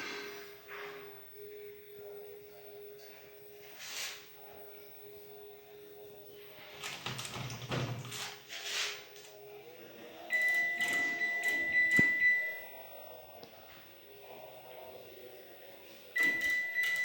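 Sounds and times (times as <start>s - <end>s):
electronic buzzer beep: 10.3s - 12.7s, 16.2s - 17.0s.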